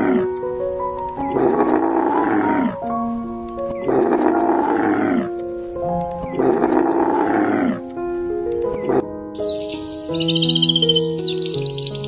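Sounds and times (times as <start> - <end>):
background music with held notes: 0.0 - 12.0
camel bellowing: 1.3 - 2.8, 3.8 - 5.4, 6.3 - 7.8.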